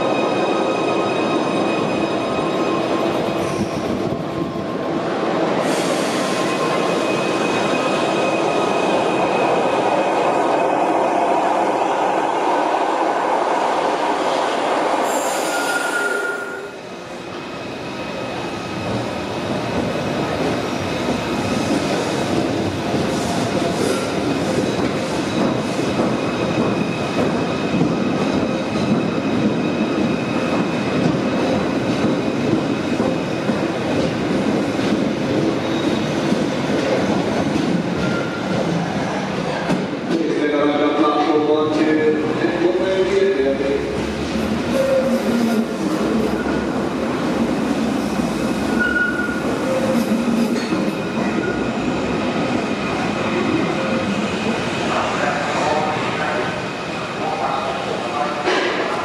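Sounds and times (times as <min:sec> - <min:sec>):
electric train rumbling: 0:00.0 - 0:59.0
wheels squealing: 0:48.7 - 0:50.0.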